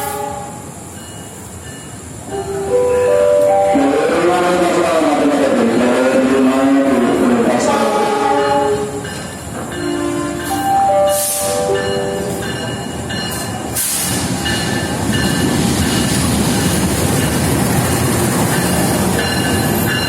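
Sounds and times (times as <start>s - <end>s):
train wheels on rails: 6.3s - 20.0s.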